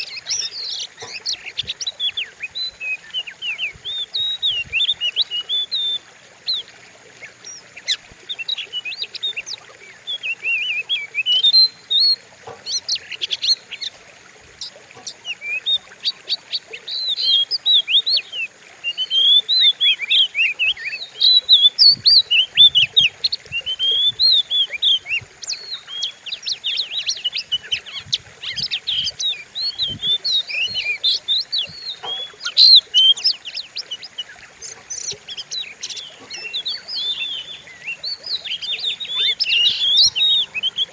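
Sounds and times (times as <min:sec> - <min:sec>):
songbird singing whistles: 0:07.4 - 0:13.7, 0:16.8 - 0:40.9.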